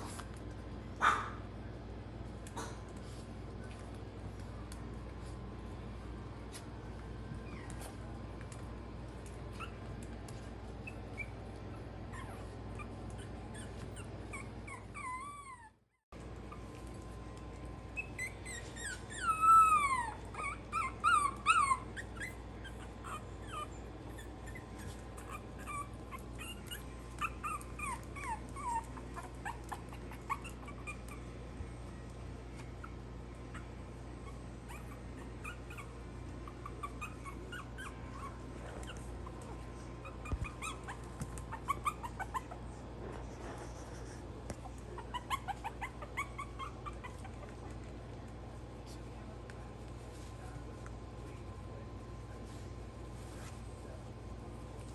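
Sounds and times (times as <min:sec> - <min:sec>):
puppies whimpering and squealing: 0:07.3 - 0:08.0, 0:09.5 - 0:10.0, 0:10.7 - 0:15.8, 0:17.8 - 0:31.8, 0:32.5 - 0:47.9.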